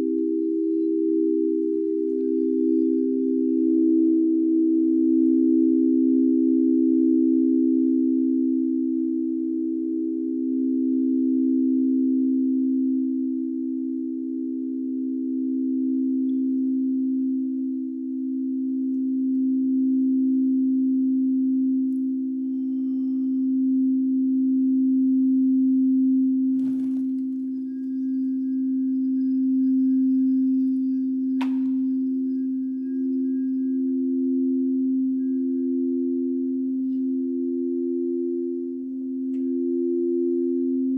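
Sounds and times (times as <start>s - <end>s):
singing bowls low tones: 0.0s - 40.9s
struck high ringing tones: 26.6s - 36.0s.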